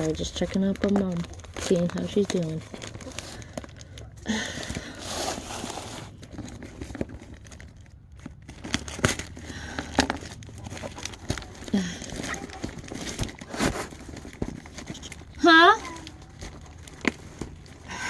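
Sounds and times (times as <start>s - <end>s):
plastic bag crinkling and tearing: 0.0s - 18.0s
crackles and knocks: 6.1s - 18.0s.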